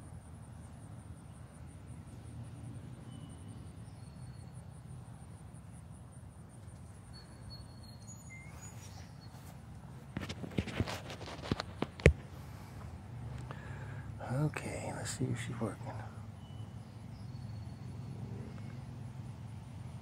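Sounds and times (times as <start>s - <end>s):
low outdoor rumble: 0.0s - 20.0s
pulsing insect trill: 0.6s - 9.4s, 13.7s - 20.0s.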